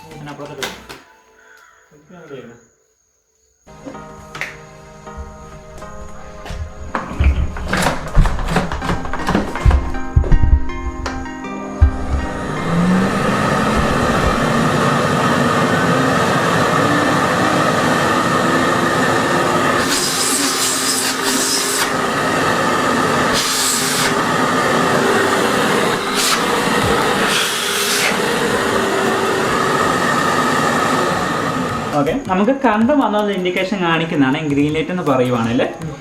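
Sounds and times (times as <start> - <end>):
vacuum cleaner motor whine: 4.9 - 32.3
airflow hissing: 10.4 - 32.0.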